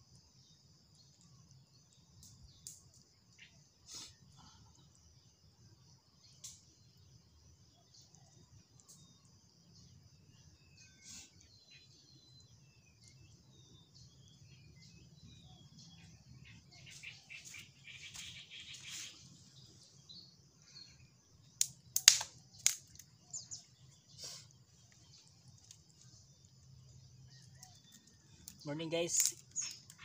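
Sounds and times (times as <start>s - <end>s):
birds chirping: 9.8s - 30.0s
loud sharp clicks: 21.6s - 23.0s.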